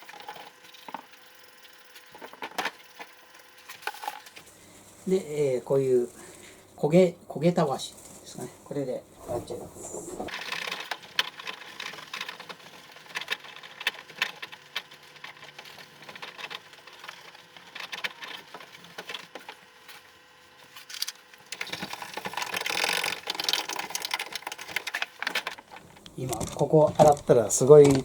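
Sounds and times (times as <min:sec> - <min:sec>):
scrub pad scraping: 0:09.2 - 0:10.4.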